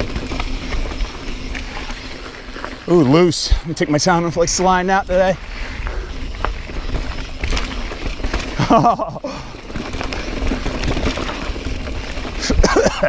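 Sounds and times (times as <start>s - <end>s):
wind rumbling on microphone: 0.0s - 8.8s
bike rattling: 0.0s - 13.0s
tyres crunching on dirt: 0.0s - 13.0s.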